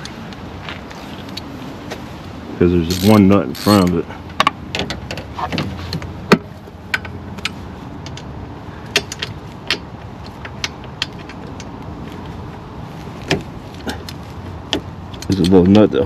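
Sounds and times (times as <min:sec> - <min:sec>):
metal hand tools clinking: 0:15.2 - 0:15.8.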